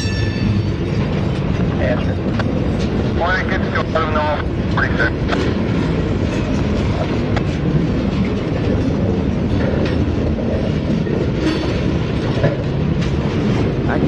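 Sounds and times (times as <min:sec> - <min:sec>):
low rumble of train wheels: 0:00.0 - 0:14.0
wheels clicking over rail joints: 0:04.2 - 0:14.0.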